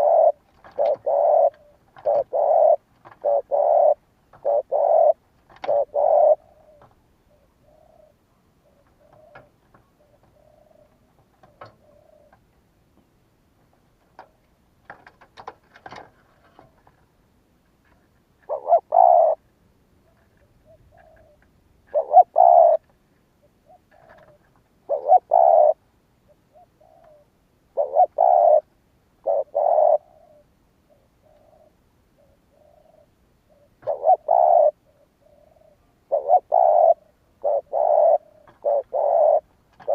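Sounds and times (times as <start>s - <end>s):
dove cooing: 0.0s - 12.4s, 17.9s - 19.4s, 20.0s - 39.9s.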